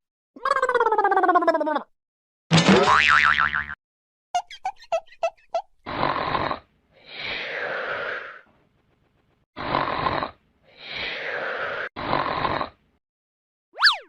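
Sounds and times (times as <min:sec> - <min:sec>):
comedy snoring: 0:05.8 - 0:08.5, 0:09.6 - 0:12.9.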